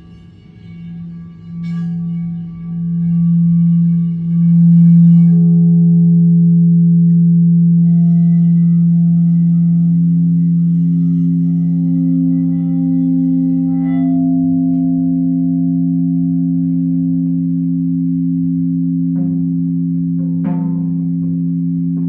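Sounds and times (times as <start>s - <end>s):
deep ringing tone: 0.0s - 22.0s
higher ringing tones: 0.0s - 22.0s.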